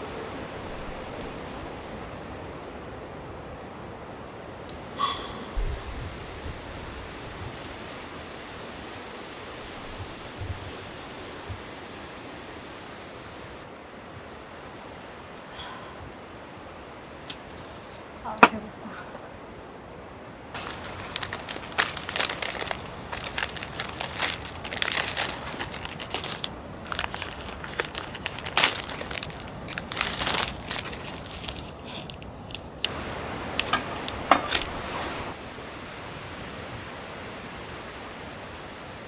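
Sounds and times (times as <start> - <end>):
steady hiss: 4.8 - 39.0
material crinkling and rustling: 20.6 - 35.4.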